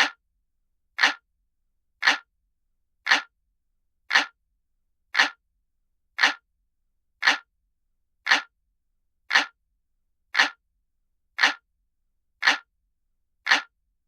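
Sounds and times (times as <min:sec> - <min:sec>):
clock ticking: 0:00.0 - 0:00.2, 0:01.0 - 0:01.2, 0:02.0 - 0:02.3, 0:03.1 - 0:03.3, 0:04.1 - 0:04.4, 0:05.2 - 0:05.4, 0:06.2 - 0:06.4, 0:07.2 - 0:07.5, 0:08.3 - 0:08.5, 0:09.3 - 0:09.6, 0:10.4 - 0:10.6, 0:11.4 - 0:11.6, 0:12.4 - 0:12.7, 0:13.4 - 0:13.7.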